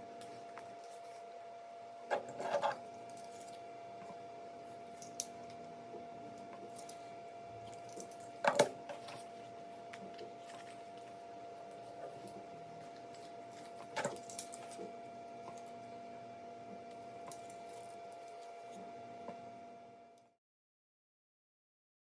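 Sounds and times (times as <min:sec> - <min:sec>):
faint steady hum: 0:00.0 - 0:20.4.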